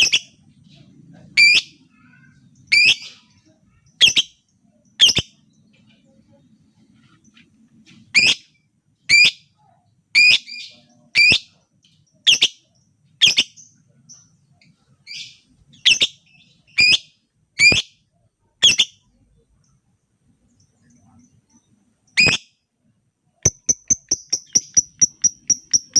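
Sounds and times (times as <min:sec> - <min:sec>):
lovebird shrill chirps: 0:22.1 - 0:22.5, 0:23.5 - 0:25.9.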